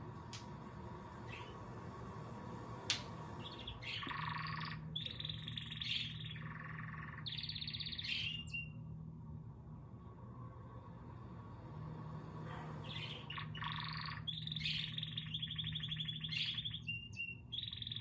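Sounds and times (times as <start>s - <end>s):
bird chirping buzzy trills: 0.0s - 18.0s
low steady hum: 0.0s - 18.0s.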